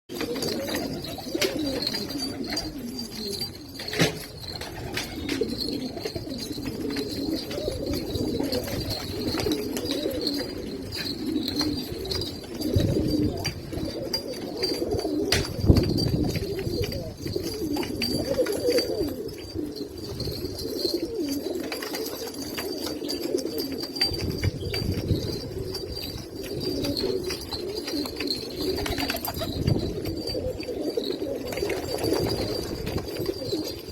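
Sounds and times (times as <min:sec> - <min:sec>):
pigeons cooing: 0:00.1 - 0:33.9.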